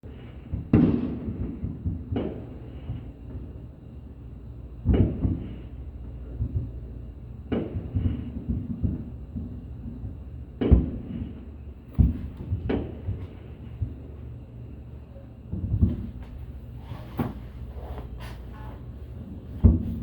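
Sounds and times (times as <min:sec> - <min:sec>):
fireworks booming: 0:00.1 - 0:03.8, 0:04.7 - 0:20.0
fireworks popping: 0:07.5 - 0:14.1, 0:15.4 - 0:20.0.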